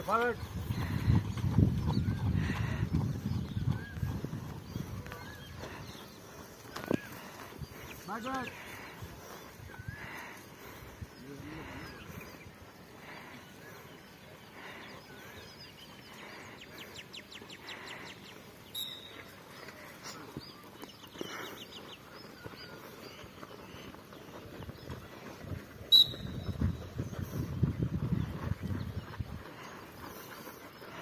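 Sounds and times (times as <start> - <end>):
birds chirping: 0.0 - 31.0
high bird trills: 18.7 - 19.4.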